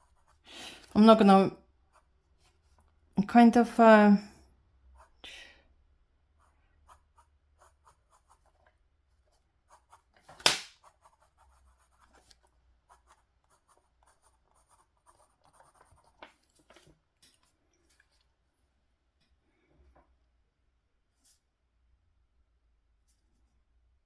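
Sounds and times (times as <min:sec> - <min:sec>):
pencil scratching on paper: 0:00.0 - 0:01.1, 0:04.9 - 0:05.2, 0:06.4 - 0:16.5.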